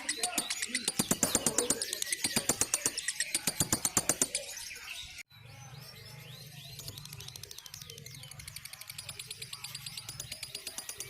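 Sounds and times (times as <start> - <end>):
lovebird harsh clicky chatter: 0.0 - 4.6, 6.8 - 11.0.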